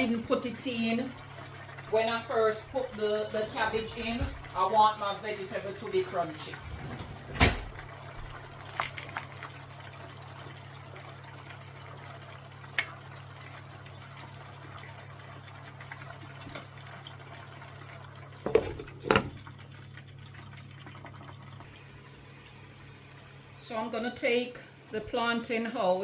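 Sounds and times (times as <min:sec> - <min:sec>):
food frying and steaming hiss: 0:21.0 - 0:26.0.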